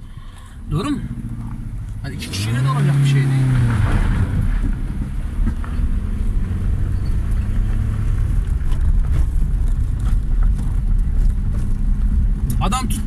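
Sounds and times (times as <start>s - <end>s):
car engine and road rumble: 0.0s - 13.0s
light rattles and knocks: 8.1s - 13.0s.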